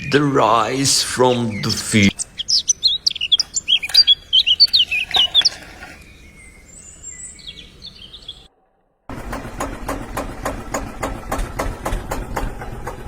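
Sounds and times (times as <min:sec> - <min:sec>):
birds chirping: 0:00.0 - 0:08.6.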